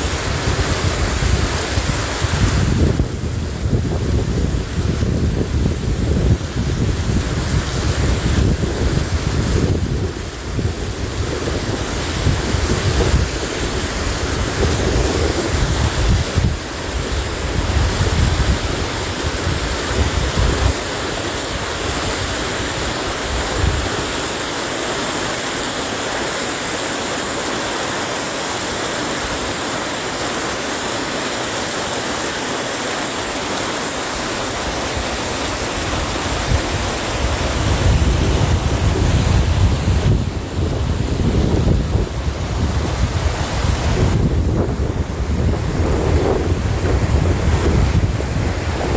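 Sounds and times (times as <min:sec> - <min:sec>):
wind buffeting microphone: 0:00.0 - 0:24.2, 0:34.2 - 0:48.9
stream rushing: 0:00.0 - 0:48.9.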